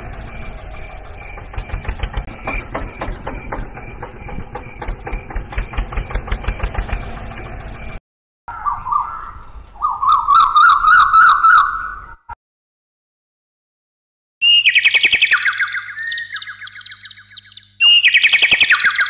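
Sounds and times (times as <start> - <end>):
tractor engine knocking: 0.0 - 8.0.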